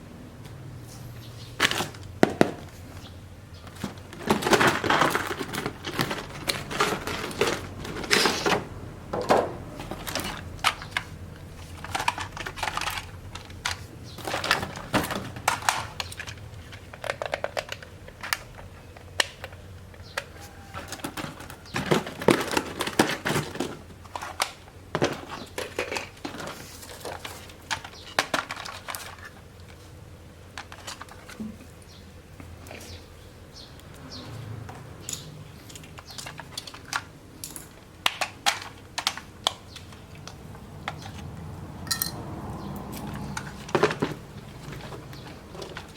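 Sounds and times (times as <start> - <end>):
crinkling rustles: 0.8 - 8.8, 9.7 - 34.6, 42.6 - 45.9
small objects clicking and tapping: 9.2 - 29.8, 34.7 - 45.9.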